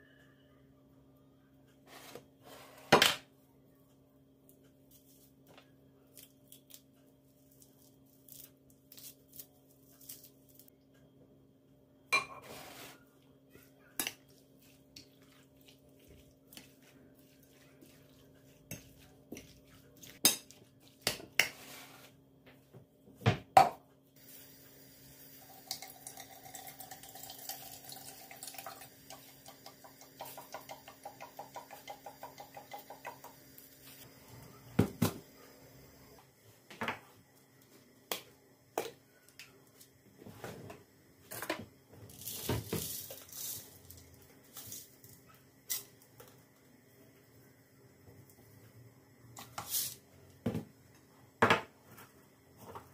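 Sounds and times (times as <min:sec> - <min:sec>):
dishes and pots clinking: 0:12.1 - 0:12.6
water running at sink: 0:24.2 - 0:34.1.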